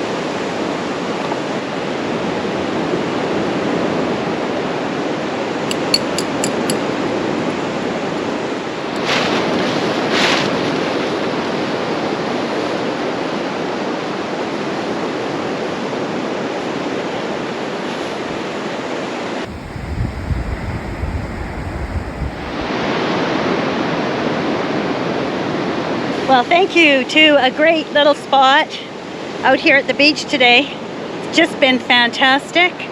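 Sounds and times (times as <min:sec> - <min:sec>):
ocean surf washing: 0:00.0 - 0:27.2
wind rumble on microphone: 0:19.4 - 0:26.5.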